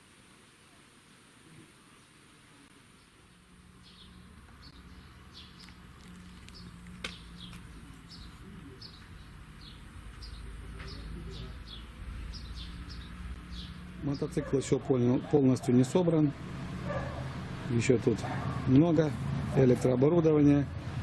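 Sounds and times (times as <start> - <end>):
small birds chirping: 2.8 - 16.3.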